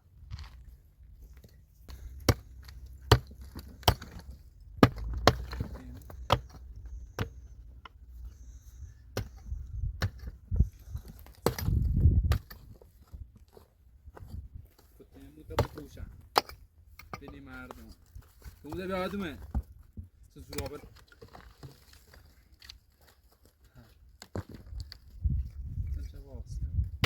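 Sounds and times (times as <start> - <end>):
wood being chopped: 1.9 - 7.4, 11.1 - 12.7, 15.5 - 17.4.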